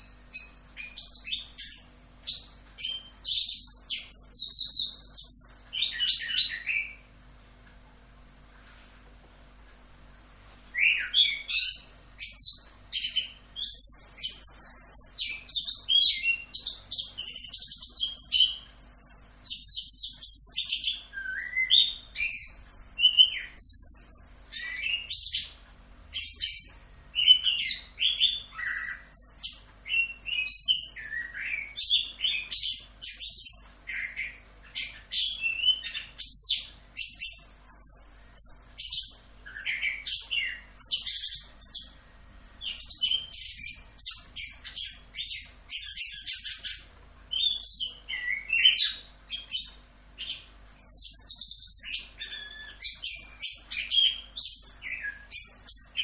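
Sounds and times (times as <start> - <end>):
thrush singing whistled phrases: 10.8 - 25.5, 26.1 - 38.1.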